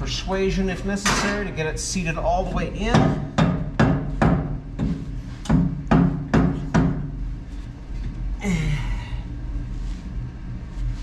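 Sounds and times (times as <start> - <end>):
hammer strikes on steel: 2.5 - 7.2.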